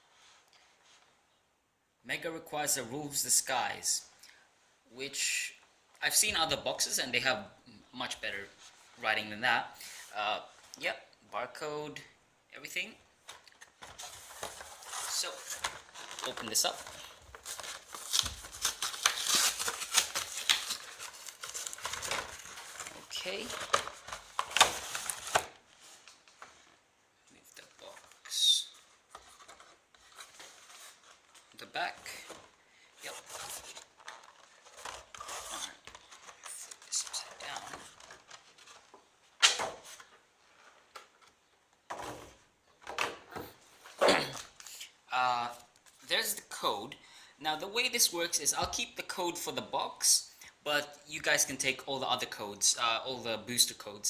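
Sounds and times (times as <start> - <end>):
rustling of cardboard and packaging: 13.2 - 27.0, 27.6 - 44.6.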